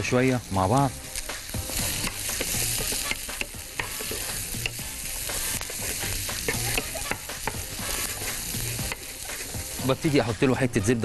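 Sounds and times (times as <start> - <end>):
food sizzling in frying pan: 0.0 - 11.0
spatula scraping and knocking pan: 1.7 - 10.1.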